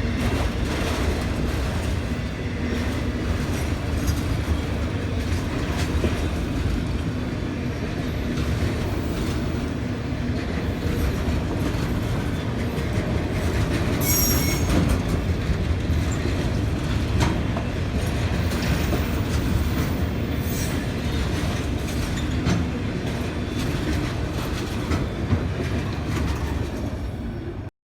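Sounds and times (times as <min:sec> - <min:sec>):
freight train rumbling past: 0:00.0 - 0:27.7
wheels clacking over rail joints: 0:08.1 - 0:27.1
high wheel squeal: 0:14.0 - 0:15.0.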